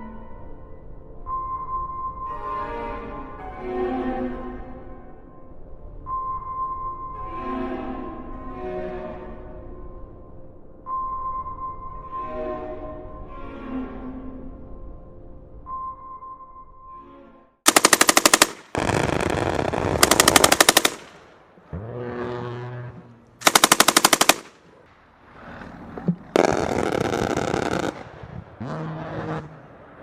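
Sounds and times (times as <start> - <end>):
automatic gunfire: 17.7 - 21.3, 23.4 - 24.6.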